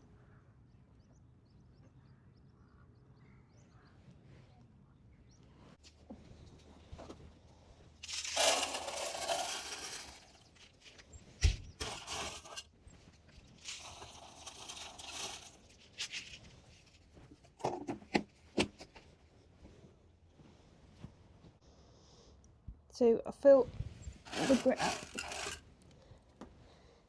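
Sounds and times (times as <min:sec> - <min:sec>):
grit poured into a container: 0:08.0 - 0:10.5, 0:13.6 - 0:15.6, 0:24.3 - 0:25.6.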